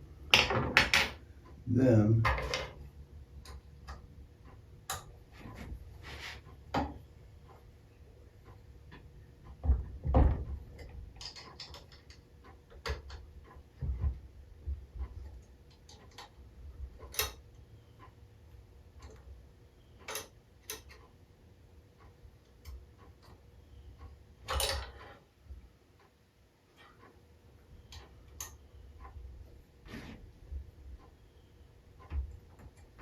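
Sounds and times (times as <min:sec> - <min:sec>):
metal parts and tools clicking: 0:24.5 - 0:25.2.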